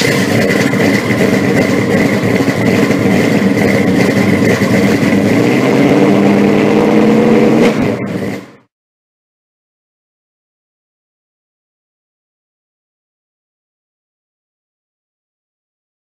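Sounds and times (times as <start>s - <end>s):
car engine running loudly: 0.0s - 8.7s
high whine: 0.0s - 8.7s.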